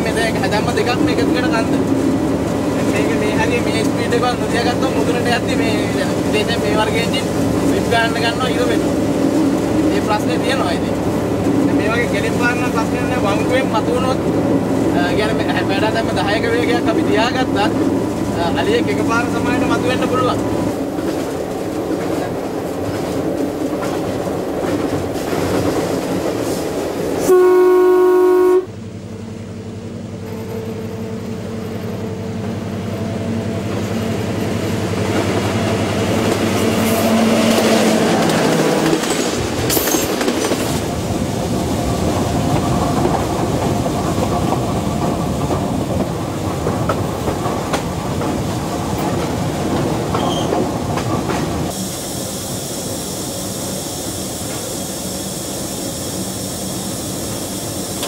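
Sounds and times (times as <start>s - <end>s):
train engine hum: 0.0s - 58.0s
wheels clattering on rails: 15.0s - 27.2s, 35.0s - 41.0s, 41.6s - 51.8s
train horn blast: 27.2s - 28.8s.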